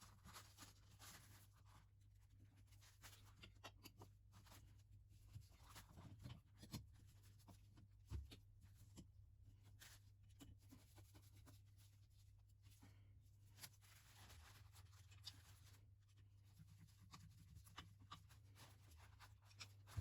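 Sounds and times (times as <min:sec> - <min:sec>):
faint clicks and taps: 0:02.8 - 0:04.6, 0:05.3 - 0:11.9, 0:13.6 - 0:20.0.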